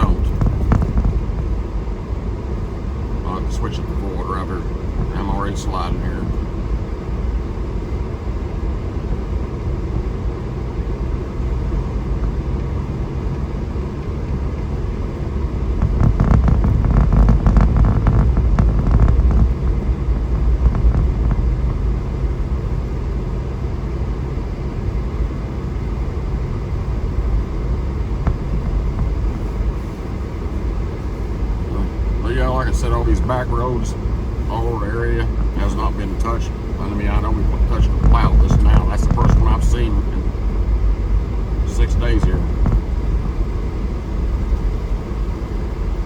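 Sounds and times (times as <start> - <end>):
engine and tyres rumbling: 0.0 - 46.0
rough crackle: 15.8 - 22.1.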